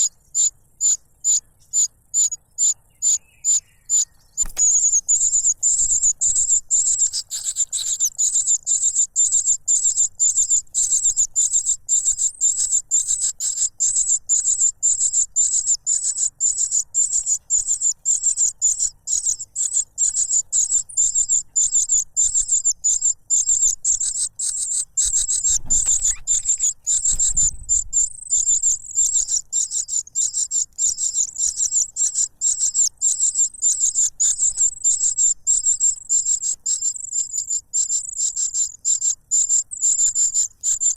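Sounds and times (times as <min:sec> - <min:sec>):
cuckoo chick begging calls: 0:00.0 - 0:40.9
low bumps: 0:25.3 - 0:28.4.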